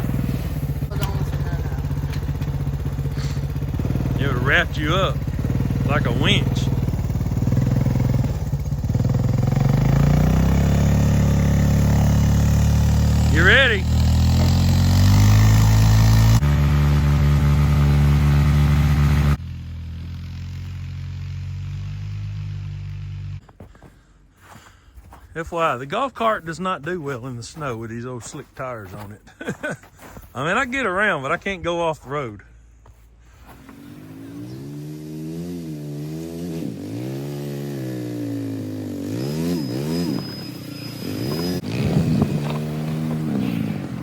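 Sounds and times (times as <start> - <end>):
atv engine running: 0.0 - 23.5, 33.4 - 44.0.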